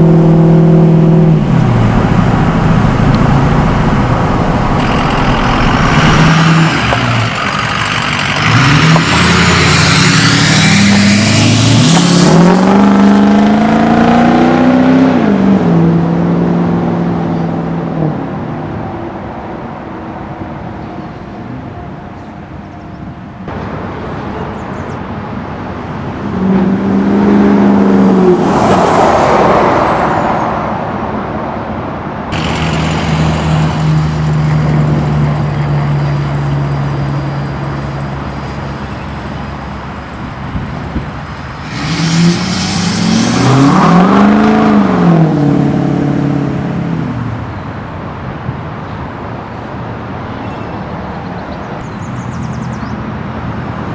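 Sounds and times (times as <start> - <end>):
diesel engine revving: 0.0 - 18.4, 32.3 - 47.5.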